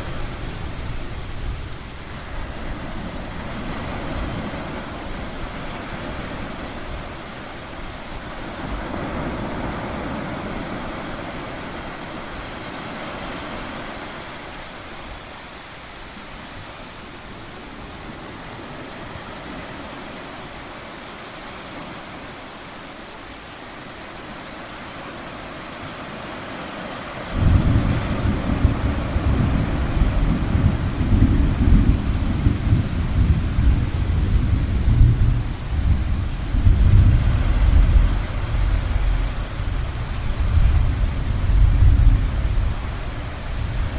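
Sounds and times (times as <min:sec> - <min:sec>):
ocean surf hissing: 0:00.0 - 0:43.9
low rumble of thunder: 0:27.2 - 0:43.9.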